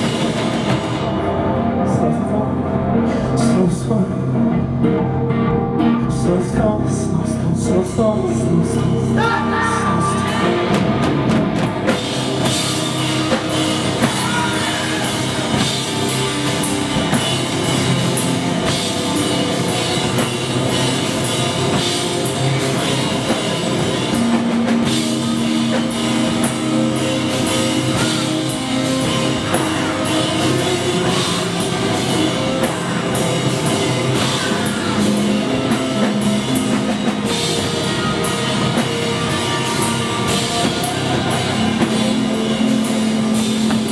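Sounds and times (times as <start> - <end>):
drum kit steady beat: 0.0 - 1.2, 10.3 - 43.9
rock band playing live: 0.0 - 43.9.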